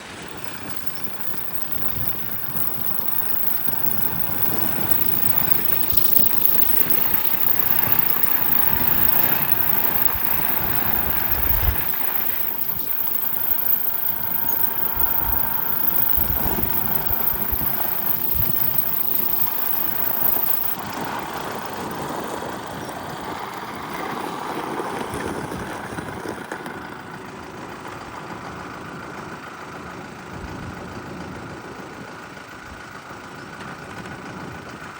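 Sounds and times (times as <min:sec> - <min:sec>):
tractor diesel engine running: 0:00.0 - 0:26.3.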